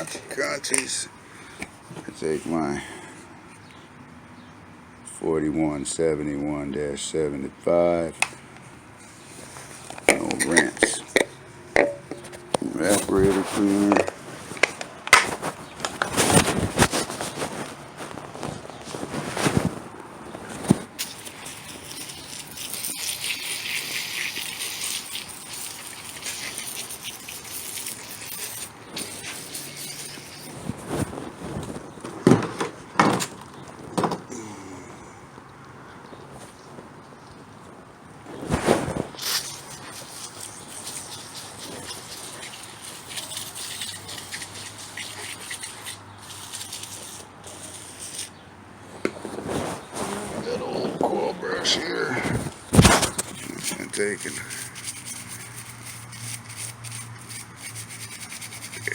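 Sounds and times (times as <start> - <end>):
scuff: 11.8 - 20.9, 49.0 - 51.0.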